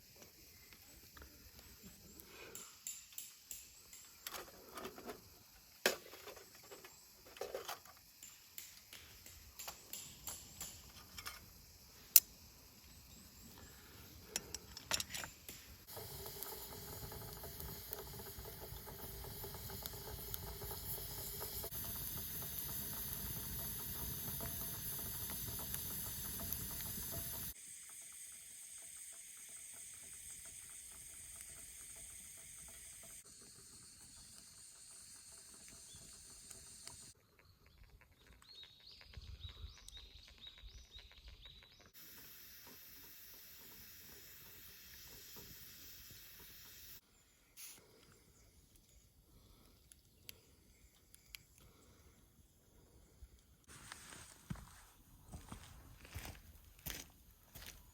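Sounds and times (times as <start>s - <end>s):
food and fire hissing: 0.0s - 37.2s, 41.8s - 57.9s
campfire crackles and pops: 8.2s - 13.5s, 14.3s - 27.6s.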